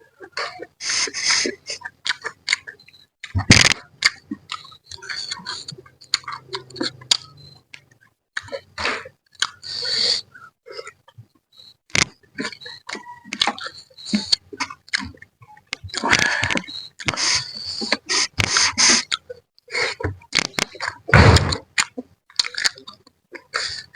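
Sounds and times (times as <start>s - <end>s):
loud thump: 21.1s - 21.6s
chewing and lip smacks: 21.8s - 23.1s.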